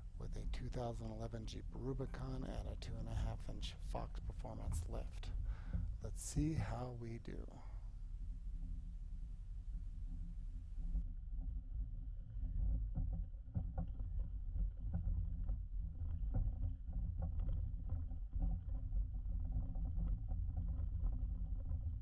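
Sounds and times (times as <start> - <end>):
car engine running low: 0.0 - 11.0.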